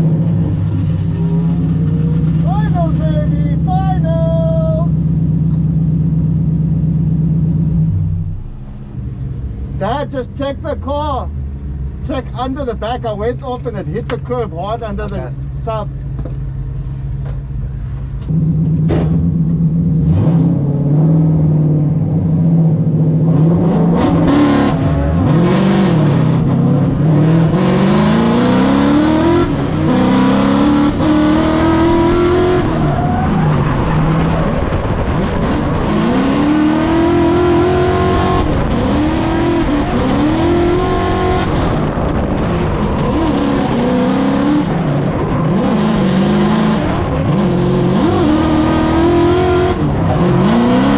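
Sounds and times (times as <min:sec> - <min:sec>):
car engine revving: 0:17.7 - 0:50.9.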